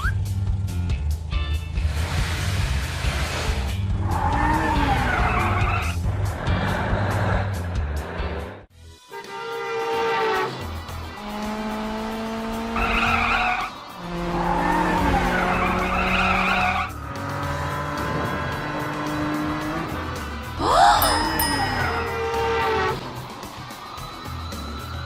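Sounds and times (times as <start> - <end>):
tyres screeching and skidding: 1.7 - 8.7, 9.6 - 25.0.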